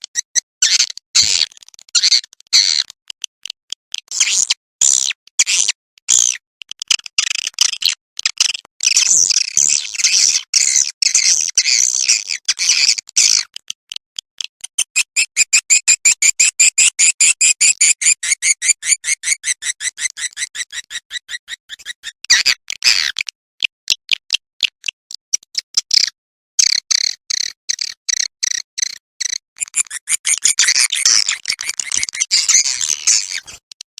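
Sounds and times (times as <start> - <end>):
clicky chirps: 12.4 - 24.2, 26.6 - 33.8
high-pitched bird twittering chatter: 14.6 - 23.1, 26.7 - 33.6.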